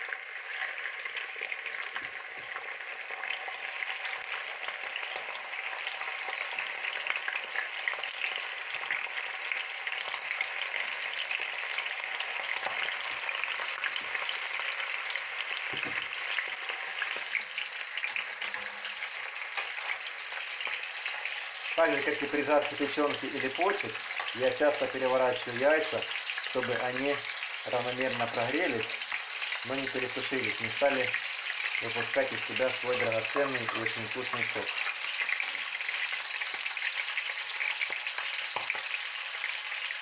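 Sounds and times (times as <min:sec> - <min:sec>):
meat sizzling in hot oil: 0:00.0 - 0:40.0.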